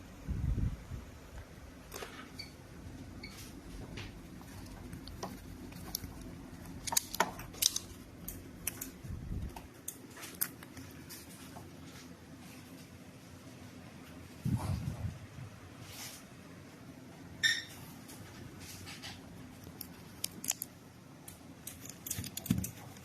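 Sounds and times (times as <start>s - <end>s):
steady low hum: 0.0s - 23.0s
small objects clicking and tapping: 3.9s - 11.4s, 19.6s - 23.0s.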